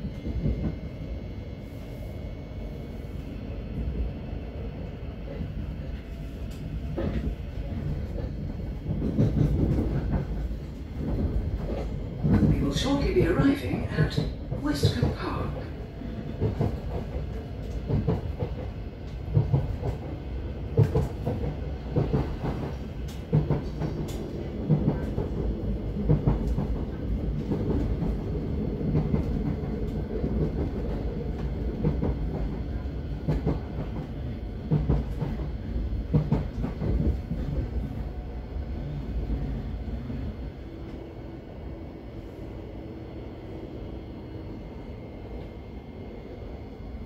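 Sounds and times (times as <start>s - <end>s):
train wheels rumbling on rails: 0.0s - 47.0s
knocks and clatter: 8.9s - 10.4s.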